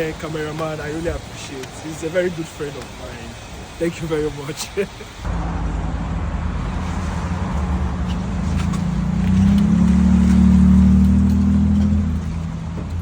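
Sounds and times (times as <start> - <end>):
car engine running: 5.2 - 13.0.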